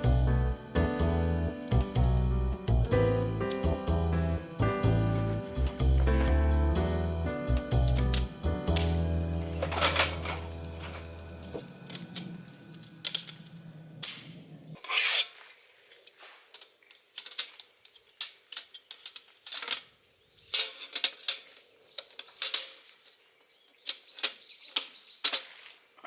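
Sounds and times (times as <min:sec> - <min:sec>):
background music: 0:00.0 - 0:13.3.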